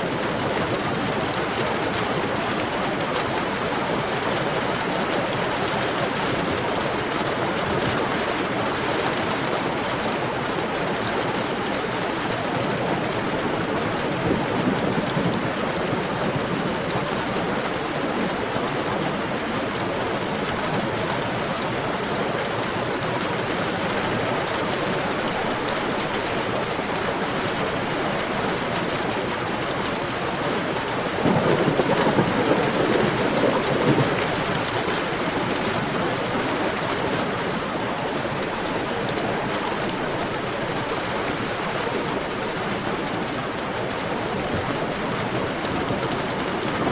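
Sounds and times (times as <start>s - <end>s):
heavy steady rain: 0.0s - 46.9s.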